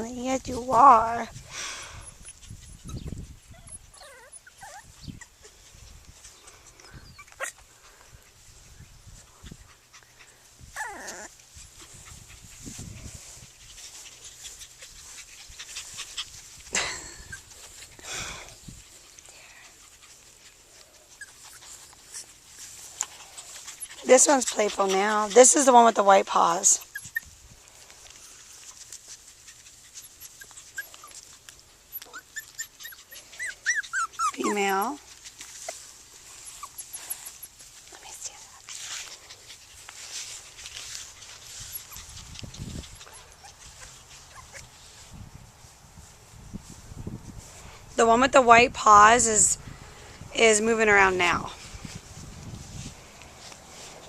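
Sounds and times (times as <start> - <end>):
puppies whining: 2.0 - 5.6, 6.8 - 7.7, 9.7 - 11.5, 21.0 - 27.3, 29.5 - 35.0, 35.6 - 37.7, 41.3 - 44.8.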